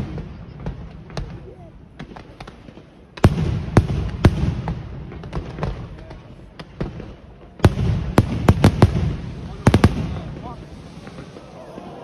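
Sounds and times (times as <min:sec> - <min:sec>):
firework cracks: 0:00.0 - 0:12.0
fireworks loud bangs: 0:00.0 - 0:12.0.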